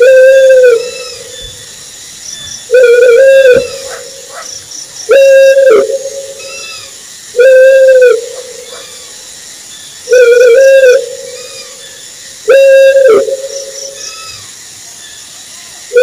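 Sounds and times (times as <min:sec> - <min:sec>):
owl hooting: 0:00.0 - 0:09.2, 0:10.0 - 0:14.5.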